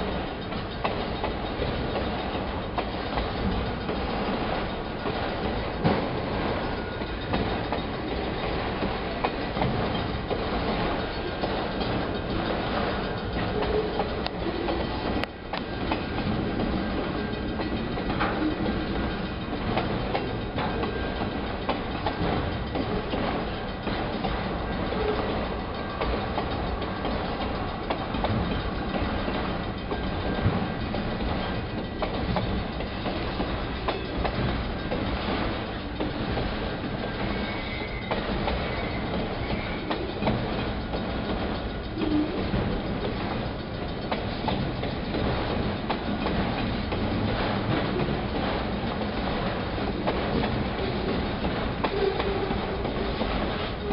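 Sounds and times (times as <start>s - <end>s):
freight train rumbling past: 0.0s - 53.9s
wheels clacking on rails: 0.0s - 53.9s
faint high wheel squeal: 5.6s - 9.2s, 20.2s - 21.6s, 24.6s - 28.9s, 36.7s - 41.0s, 41.6s - 42.9s, 51.9s - 53.9s.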